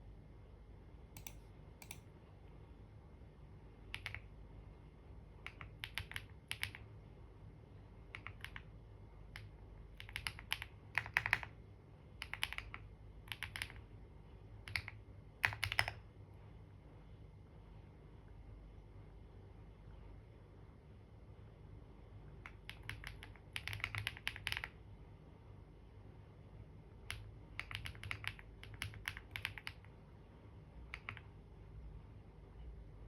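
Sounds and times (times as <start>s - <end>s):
typing on computer keyboard: 1.2s - 2.0s, 3.9s - 4.3s, 5.4s - 6.9s, 8.1s - 8.7s, 9.3s - 11.6s, 12.2s - 13.8s, 14.6s - 16.0s, 22.5s - 24.8s, 27.1s - 29.9s, 30.9s - 31.3s.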